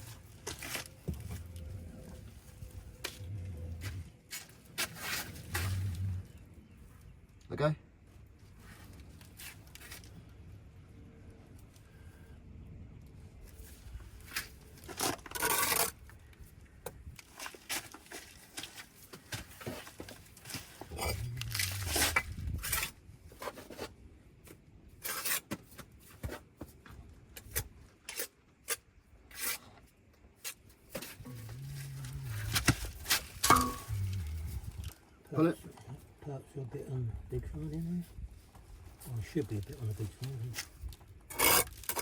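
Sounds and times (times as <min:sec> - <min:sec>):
trowel scraping mortar on brick: 0:15.0 - 0:16.0, 0:25.0 - 0:25.6, 0:41.3 - 0:42.0.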